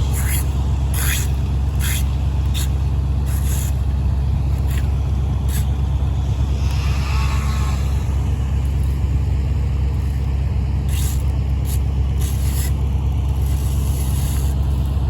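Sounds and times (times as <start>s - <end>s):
sharp scraping or clacking: 0.0s - 3.9s, 4.5s - 9.1s
heavy engine running: 0.0s - 15.0s.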